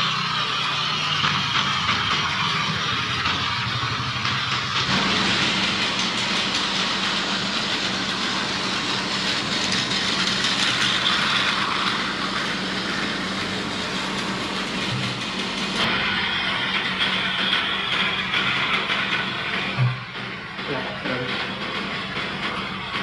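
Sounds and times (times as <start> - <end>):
toy train motor whine: 0.0 - 22.9
rattle of toy train wheels: 0.0 - 23.0.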